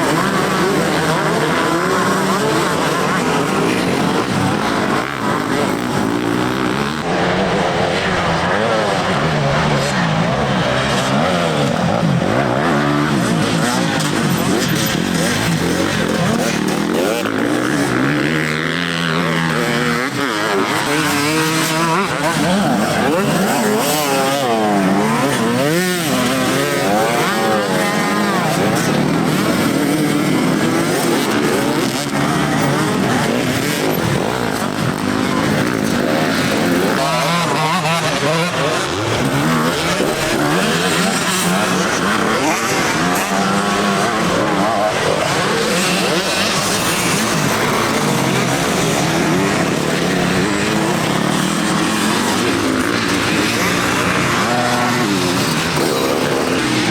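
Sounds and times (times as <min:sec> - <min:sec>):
motocross bike engines revving: 0:00.0 - 0:56.9.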